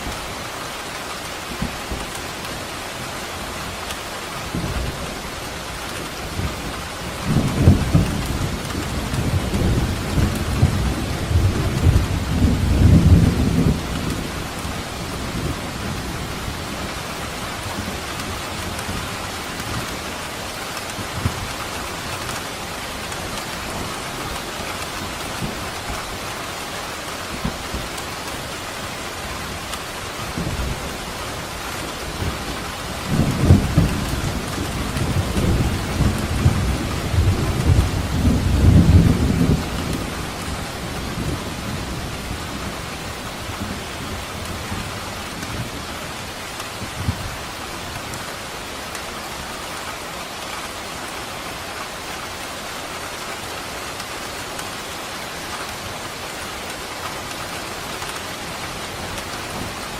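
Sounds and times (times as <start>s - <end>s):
steady rain falling: 0.0s - 59.9s
rolling thunder rumble: 6.3s - 16.9s, 30.2s - 45.8s.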